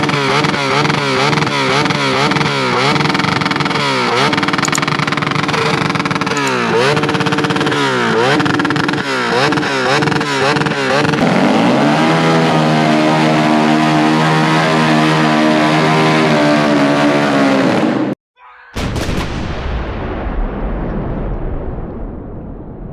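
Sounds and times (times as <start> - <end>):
motorcycle engine revving: 0.0 - 18.2
loud low rumble: 18.8 - 22.9.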